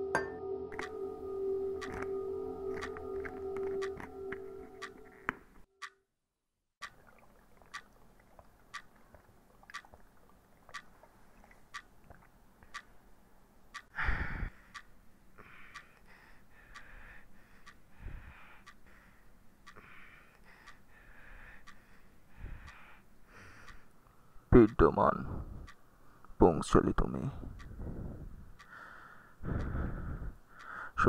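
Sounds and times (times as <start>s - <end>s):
clock ticking: 1.8s - 2.1s, 8.7s - 9.0s, 11.7s - 12.0s, 12.6s - 13.0s, 13.7s - 19.0s, 19.6s - 31.0s
soft breathy sounds: 13.9s - 24.5s, 25.2s - 26.4s, 27.3s - 31.0s.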